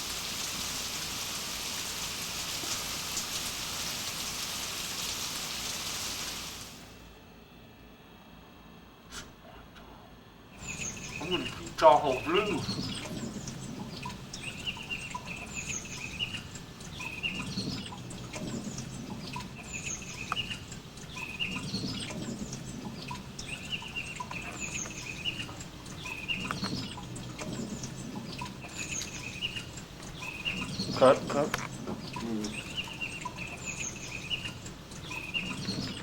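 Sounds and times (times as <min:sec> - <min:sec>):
birds chirping: 0:10.6 - 0:36.0.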